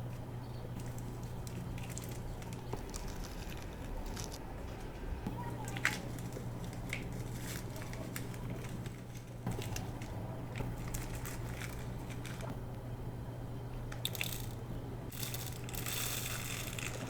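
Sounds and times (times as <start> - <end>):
steady low hum: 0.0 - 17.0
plastic packets crinkling: 0.8 - 4.4, 5.7 - 12.5, 14.1 - 17.0.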